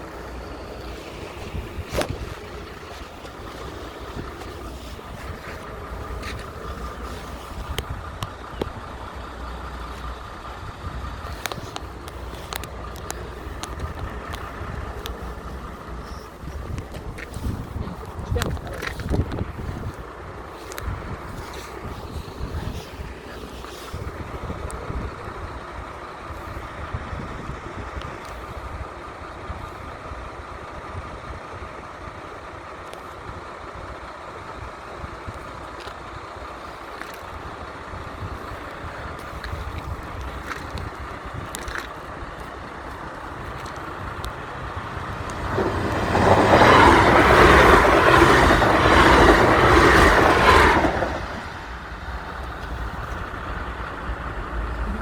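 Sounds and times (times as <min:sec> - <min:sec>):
diesel train passing: 0:00.0 - 0:55.0
wind on microphone: 0:16.3 - 0:25.6.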